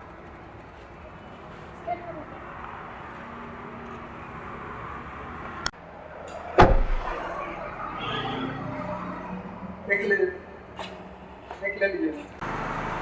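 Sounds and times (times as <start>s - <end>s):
car door thud: 6.6s - 7.2s.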